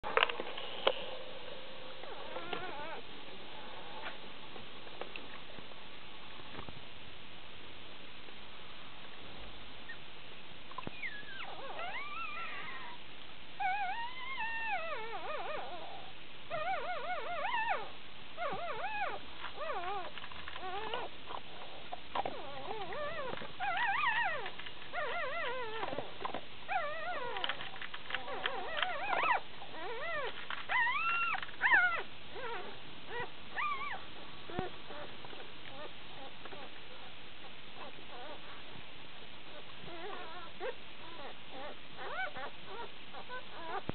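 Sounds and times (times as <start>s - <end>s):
puppies squealing and whining: 1.8s - 3.0s, 10.8s - 13.0s, 13.6s - 37.2s, 37.8s - 38.6s, 39.5s - 43.9s.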